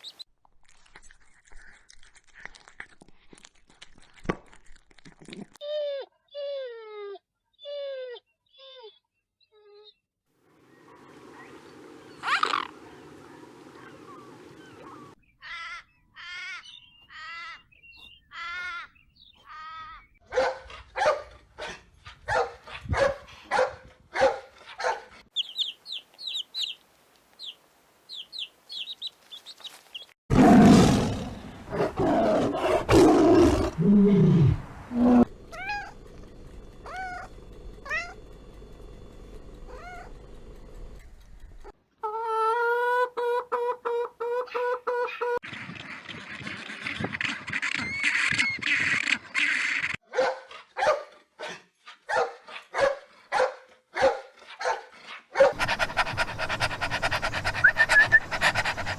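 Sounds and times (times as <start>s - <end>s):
pitched animal calls: 11.1s - 20.1s, 32.4s - 38.3s, 39.6s - 40.2s, 55.5s - 58.9s
loud deep animal roar: 30.3s - 41.0s.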